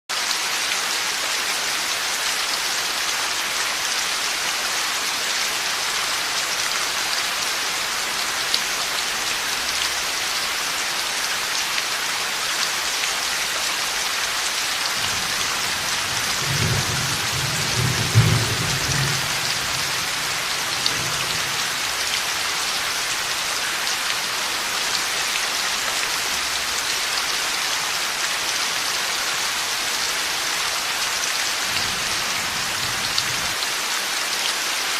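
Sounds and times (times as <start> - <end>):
heavy rain: 0.1 - 34.9
thunder rumbling: 15.0 - 21.8.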